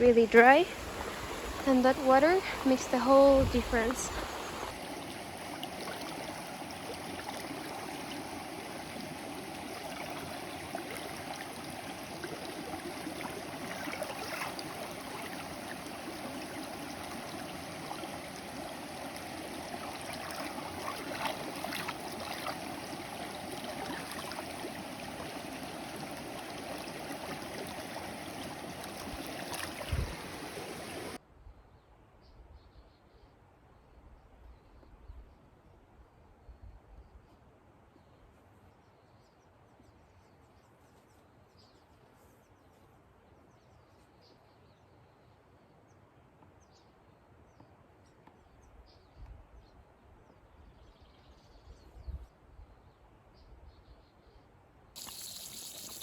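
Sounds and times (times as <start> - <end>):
stream flowing over rocks: 0.0 - 31.2, 55.0 - 56.0.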